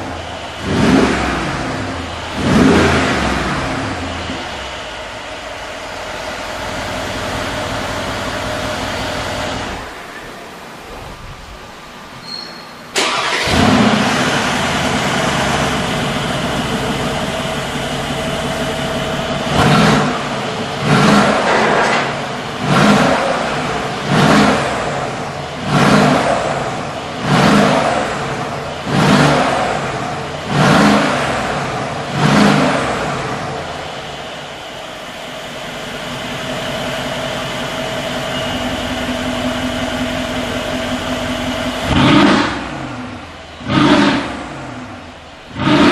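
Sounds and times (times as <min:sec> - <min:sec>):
engine revving: 0:00.0 - 0:09.9, 0:13.0 - 0:34.3, 0:36.0 - 0:45.9
engine idling: 0:00.0 - 0:10.5, 0:12.9 - 0:45.9.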